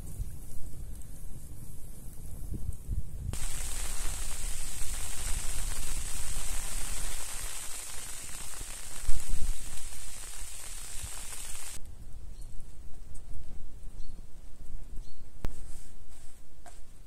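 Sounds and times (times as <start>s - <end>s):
rain falling: 3.4s - 11.8s.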